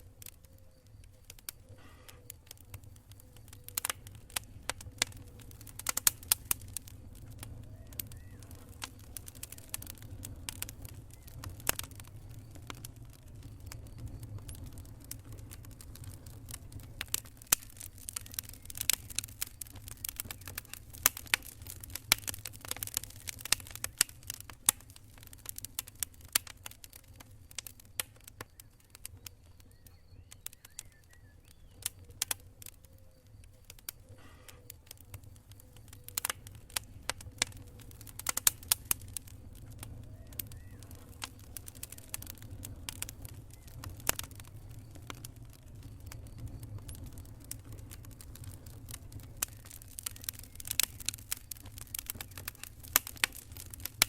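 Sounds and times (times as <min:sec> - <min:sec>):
campfire crackling: 0:00.0 - 0:54.0.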